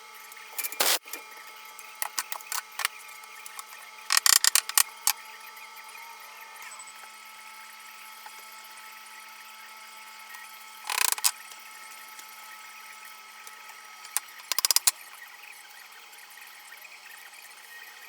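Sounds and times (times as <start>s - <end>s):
workshop tool rapid clicking: 0.6s - 1.2s, 2.0s - 2.9s, 3.5s - 5.2s, 10.9s - 11.4s, 14.0s - 14.9s.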